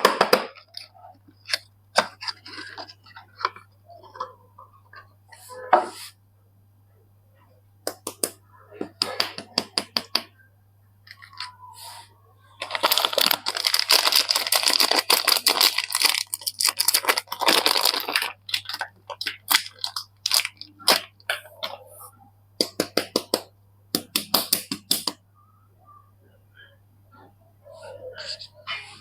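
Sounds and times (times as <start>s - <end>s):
wrapper crinkling and tearing: 12.6s - 21.2s.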